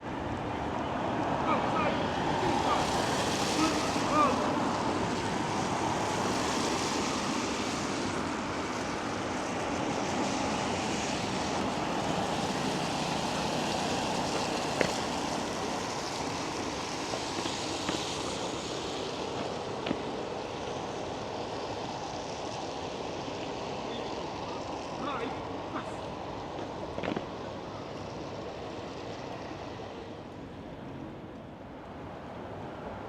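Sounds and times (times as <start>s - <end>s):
traffic: 0.0s - 33.0s.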